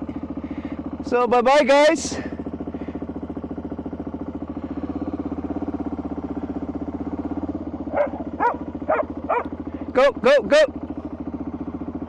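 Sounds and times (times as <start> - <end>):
motorcycle engine idling: 0.0 - 12.0
dog barking: 7.9 - 9.5.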